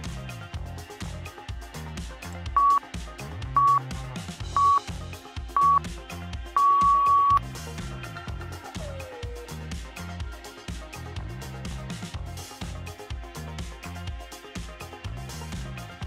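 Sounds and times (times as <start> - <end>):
timer long beep: 2.6 - 2.8, 3.6 - 3.9, 4.6 - 4.9, 5.6 - 5.8, 6.6 - 7.4
timer short electronic beeps: 2.6 - 2.8, 3.6 - 3.9, 4.6 - 4.9, 5.6 - 5.8, 6.6 - 7.4
electronic dance music: 2.6 - 3.0, 3.6 - 4.0, 4.6 - 4.8, 5.6 - 5.9, 6.5 - 7.4.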